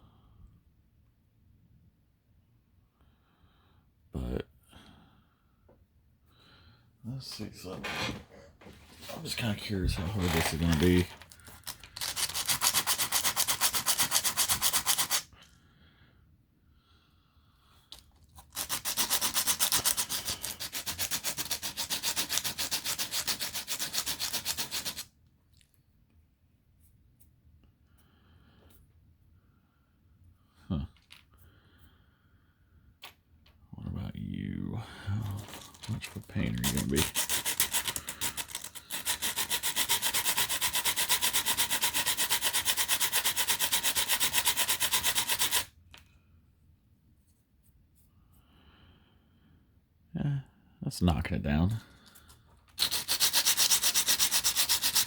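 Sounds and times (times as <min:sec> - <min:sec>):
hand sanding plastic: 0:07.3 - 0:15.3, 0:18.0 - 0:25.1, 0:35.2 - 0:45.8, 0:51.9 - 0:55.0.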